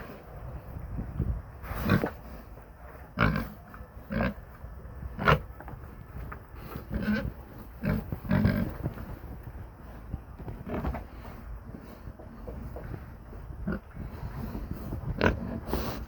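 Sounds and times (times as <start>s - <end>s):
pigs grunting: 1.7s - 2.4s, 3.1s - 4.5s, 5.2s - 5.5s, 6.6s - 9.2s, 13.5s - 16.0s.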